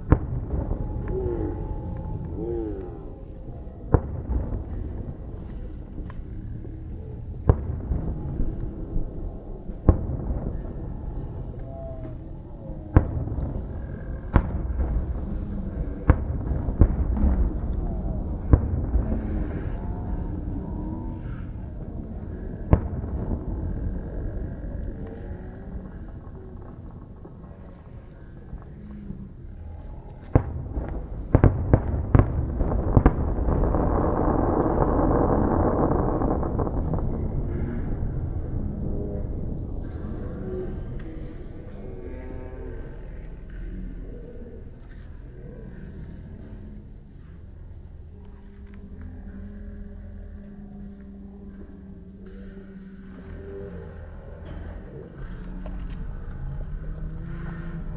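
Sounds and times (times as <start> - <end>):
fireworks bangs: 0.0 - 1.7, 3.8 - 11.7, 12.9 - 20.4, 22.6 - 24.3, 30.2 - 38.6
continuous rushing noise: 0.0 - 57.9
low rumble: 0.0 - 57.9.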